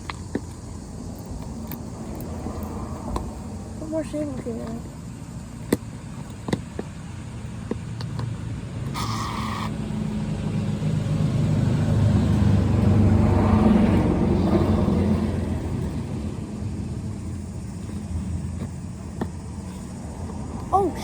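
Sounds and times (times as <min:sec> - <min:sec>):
short hiss: 0:08.9 - 0:09.7.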